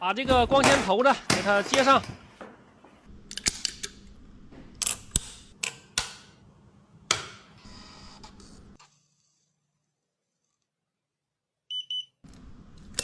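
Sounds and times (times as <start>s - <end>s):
tools and small parts clicking: 3.3s - 4.0s.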